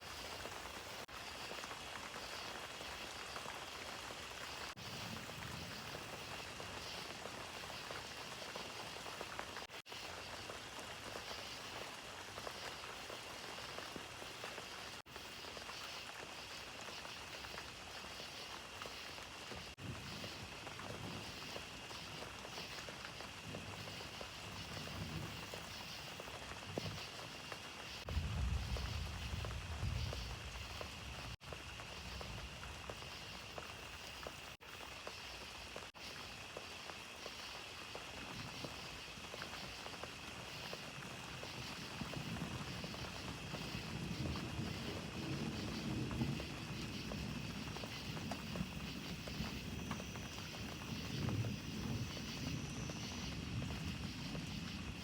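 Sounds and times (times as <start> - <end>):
steady rain falling: 0.0 - 55.0
thunder rumbles: 4.5 - 9.2, 19.6 - 22.8, 23.4 - 34.1, 41.3 - 55.0.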